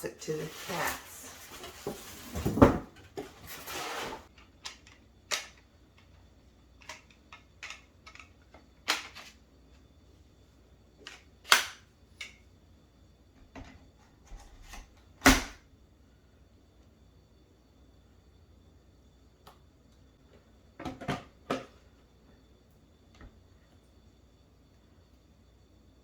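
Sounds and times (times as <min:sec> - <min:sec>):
plastic parts snapping together: 0:11.1 - 0:11.8.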